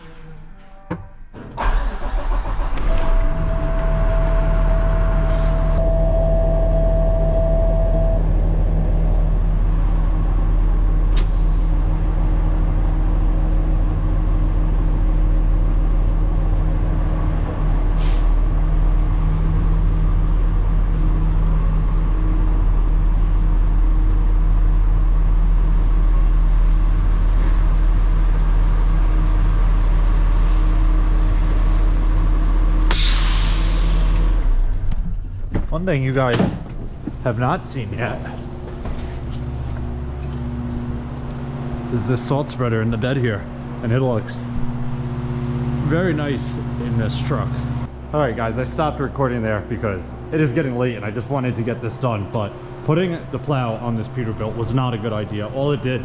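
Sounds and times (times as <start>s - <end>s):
truck engine running: 1.5s - 56.0s
steady high tone: 2.8s - 9.7s.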